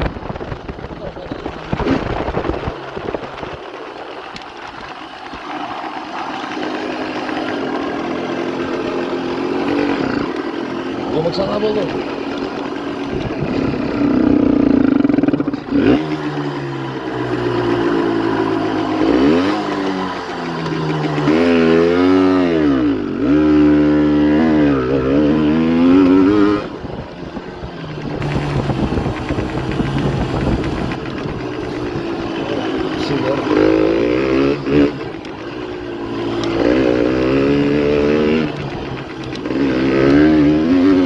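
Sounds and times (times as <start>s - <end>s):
two-stroke engine revving: 0.0s - 41.0s.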